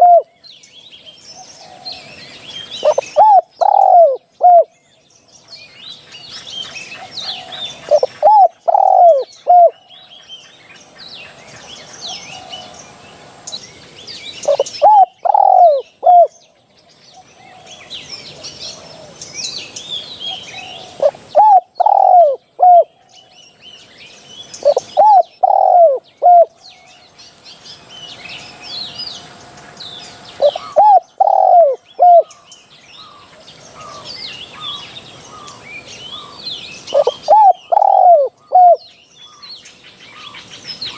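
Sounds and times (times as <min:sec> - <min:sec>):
dove cooing: 0:00.0 - 0:00.3, 0:02.7 - 0:04.7, 0:07.0 - 0:09.8, 0:14.5 - 0:16.3, 0:20.3 - 0:22.9, 0:24.6 - 0:26.6, 0:30.4 - 0:32.4, 0:35.4 - 0:38.8
small birds chirping: 0:00.0 - 0:40.9.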